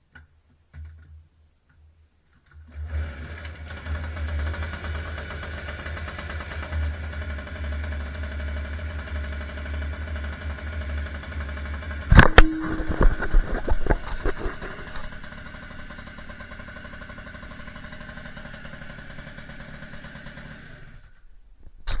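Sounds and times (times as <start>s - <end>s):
moped engine running: 2.9s - 21.2s
loud engine knocks and clatter: 3.4s - 20.8s.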